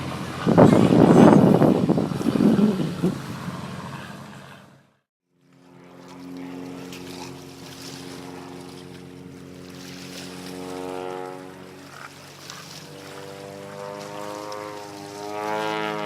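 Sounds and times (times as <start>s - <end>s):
piston engine droning: 0.0s - 16.0s.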